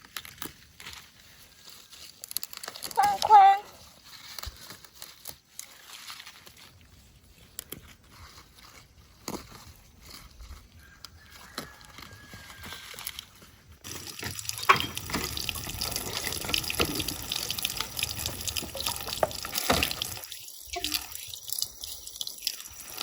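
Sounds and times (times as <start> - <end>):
water drips: 13.8 - 23.0
tap water splashing into basin: 13.9 - 21.7.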